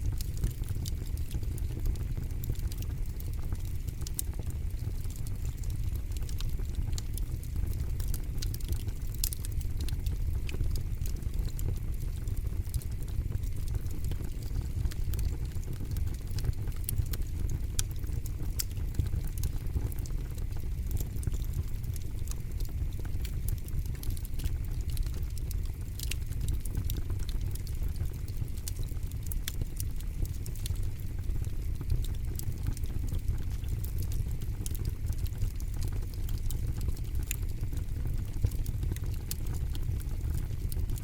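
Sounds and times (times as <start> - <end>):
campfire rumble: 0.0 - 41.0
fire crackles and pops: 0.0 - 41.0.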